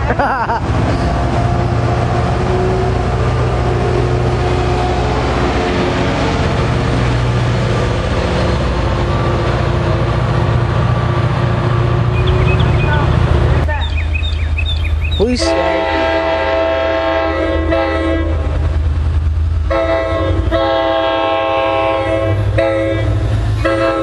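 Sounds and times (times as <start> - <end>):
diesel train rumbling: 0.0 - 24.0.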